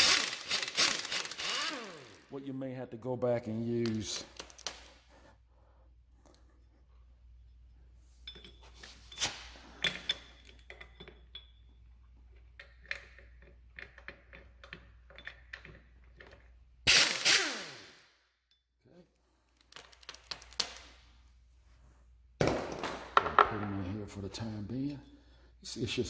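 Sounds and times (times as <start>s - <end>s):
metal tools clinking: 8.2s - 11.8s.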